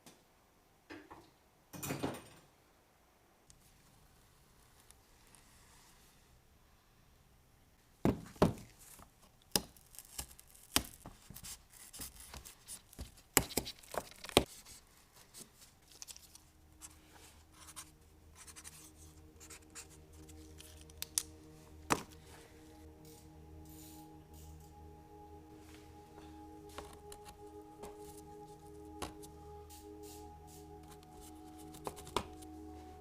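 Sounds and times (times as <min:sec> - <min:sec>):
quiet background music: 0:11.8 - 0:33.0.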